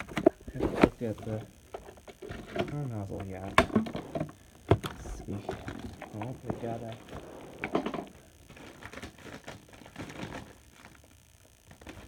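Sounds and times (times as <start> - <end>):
plastic parts clicking and knocking: 0.0 - 6.9.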